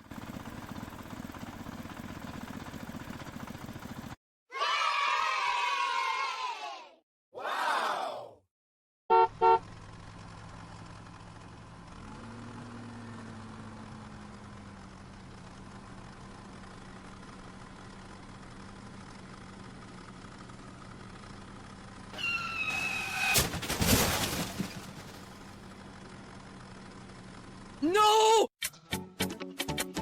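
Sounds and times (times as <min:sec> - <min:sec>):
loud crashing clatter: 0:22.2 - 0:25.6.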